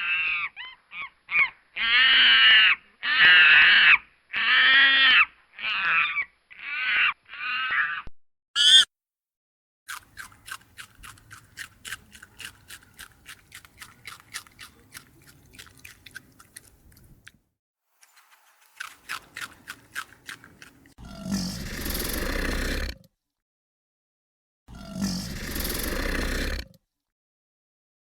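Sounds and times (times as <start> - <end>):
short high animal call: 8.6 - 8.9
animal chewing: 9.9 - 17.4, 18.0 - 21.0.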